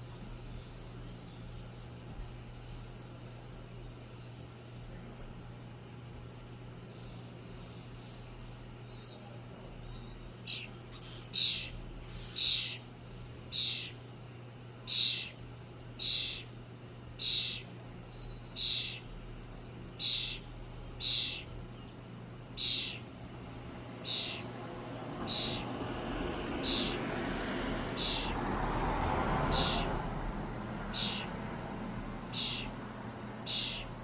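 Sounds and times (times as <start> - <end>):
robin calling: 6.8 - 27.1, 27.8 - 28.5, 29.5 - 31.4, 32.1 - 34.0.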